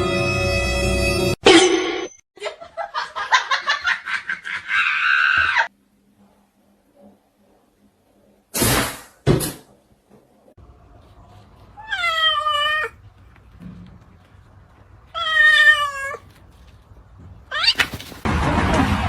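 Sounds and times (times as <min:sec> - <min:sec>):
cat meowing: 0:11.8 - 0:13.0, 0:15.1 - 0:16.4, 0:17.5 - 0:18.2.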